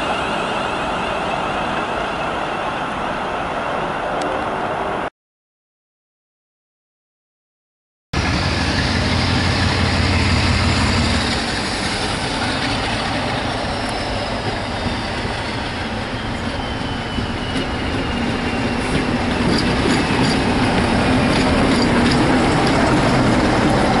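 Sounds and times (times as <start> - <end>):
train wheels rumbling and clicking: 8.2 - 24.0.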